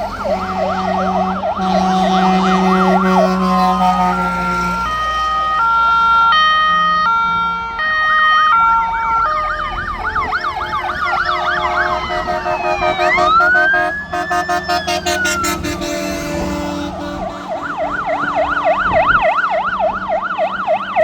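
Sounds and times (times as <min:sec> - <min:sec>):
two-tone horn: 0:00.0 - 0:05.6, 0:11.2 - 0:19.3
siren slow wail: 0:00.0 - 0:21.0
sirens yelping: 0:00.0 - 0:21.0.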